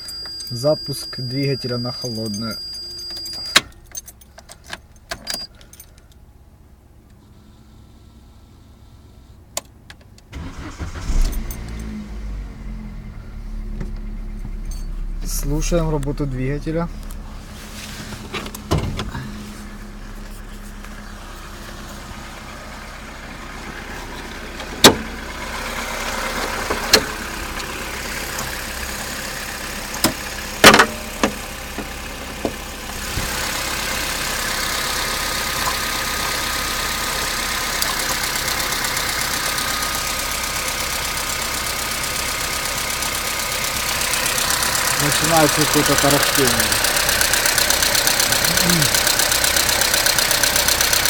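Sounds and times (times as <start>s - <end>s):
car engine idling: 0.0s - 51.0s
steady engine rattling: 10.4s - 51.0s
sharp engine knocks: 24.6s - 25.1s.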